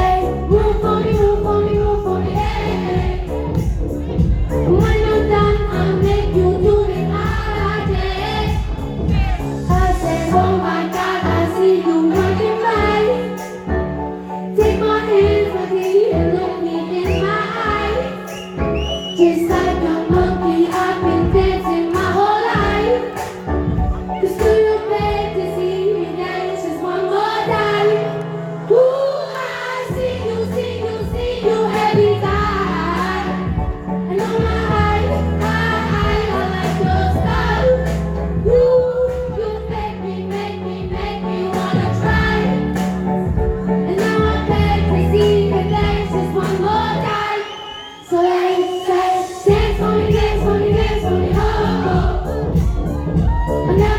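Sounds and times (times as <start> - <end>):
woman singing: 0.0 - 3.2, 4.6 - 13.6, 19.1 - 23.4, 24.0 - 28.0, 28.7 - 40.0
pop beat and bass line: 0.0 - 11.5, 18.6 - 25.5, 29.9 - 47.2, 49.5 - 53.9.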